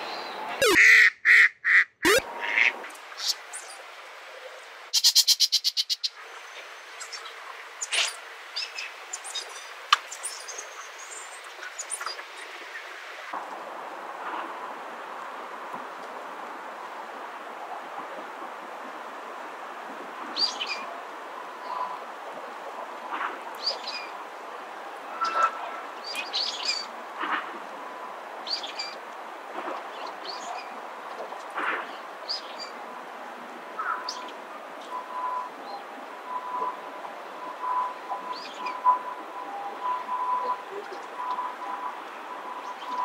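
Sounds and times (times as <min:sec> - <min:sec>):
steady background noise: 0:02.0 - 0:43.0.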